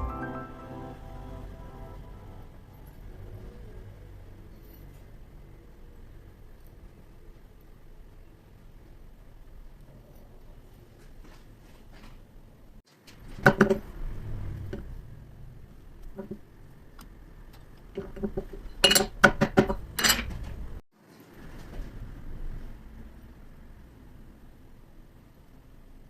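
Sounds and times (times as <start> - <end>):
metal tools clinking: 18.6 - 19.2, 19.8 - 20.4.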